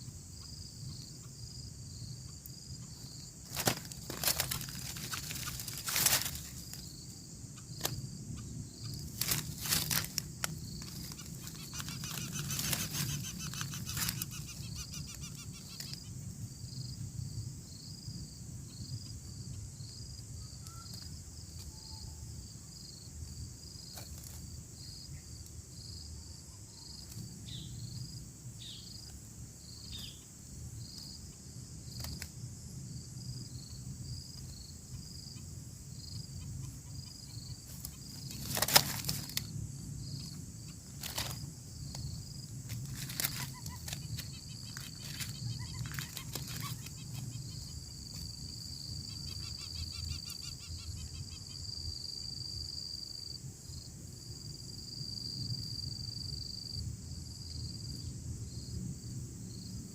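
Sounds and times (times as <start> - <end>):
insect chorus: 0.0 - 59.9
regular insect chirp: 0.0 - 59.9
loud rustling: 3.4 - 6.8, 9.0 - 14.3, 37.7 - 39.5, 41.0 - 41.5, 42.7 - 46.8.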